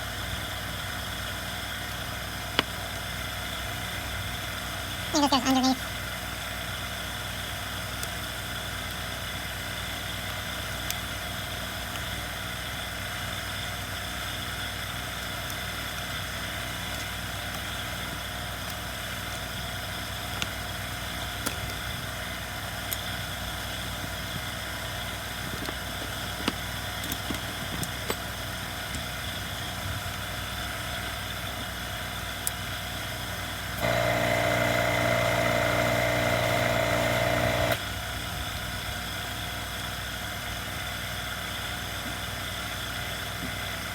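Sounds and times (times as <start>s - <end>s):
higher machine hum: 33.8s - 37.8s
machine hum: 33.8s - 37.8s.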